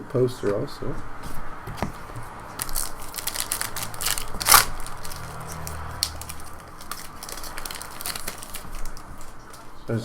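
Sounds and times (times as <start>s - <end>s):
wrapper crinkling: 2.0s - 9.8s.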